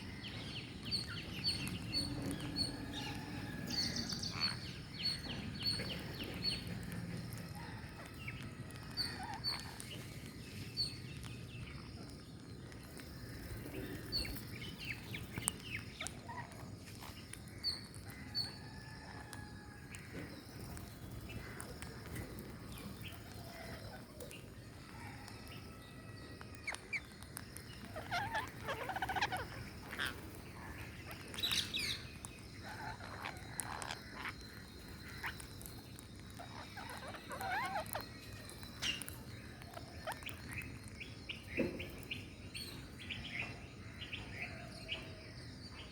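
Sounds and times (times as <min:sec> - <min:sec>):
parrots chirping: 0:00.1 - 0:09.8, 0:13.2 - 0:17.1, 0:26.7 - 0:43.2
parrot squawks: 0:36.5 - 0:38.0.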